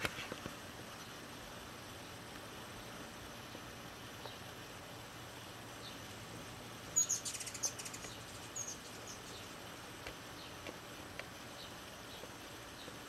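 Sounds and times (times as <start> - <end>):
faint hiss: 0.0 - 13.0
bird chirping and trilling: 6.9 - 9.6.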